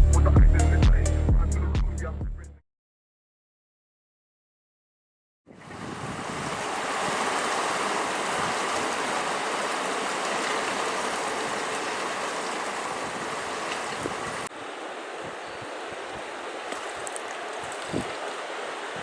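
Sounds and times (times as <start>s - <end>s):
river flowing: 5.6s - 19.0s.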